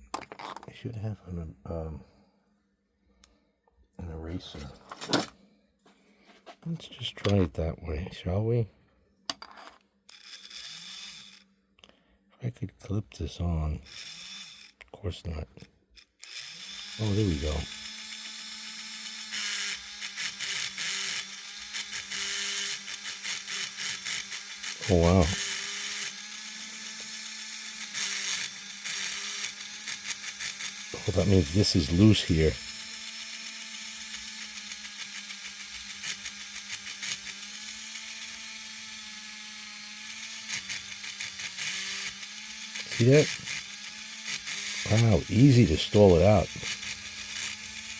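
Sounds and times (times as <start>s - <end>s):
electric motor buzzing whir: 10.1s - 11.6s, 13.8s - 14.9s, 15.6s - 47.9s.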